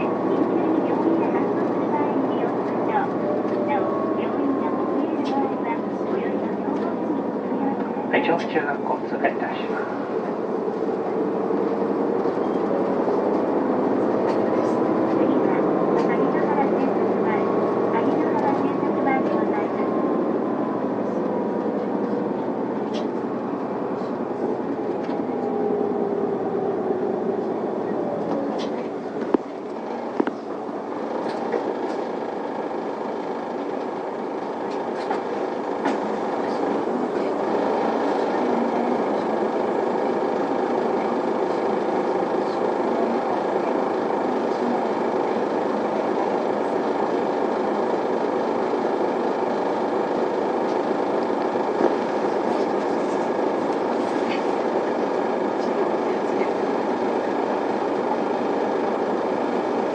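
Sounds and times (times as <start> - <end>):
bus engine and road noise: 0.0 - 59.9.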